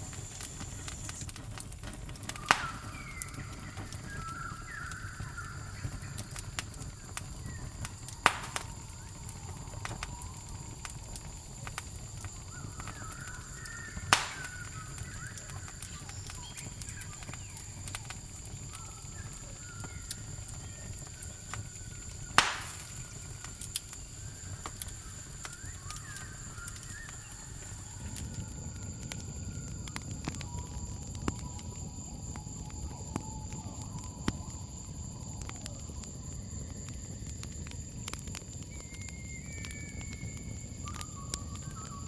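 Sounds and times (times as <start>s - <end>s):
campfire crackling and popping: 0.0s - 42.0s
crickets trilling: 0.0s - 42.0s
faint chirping calls: 2.0s - 34.5s.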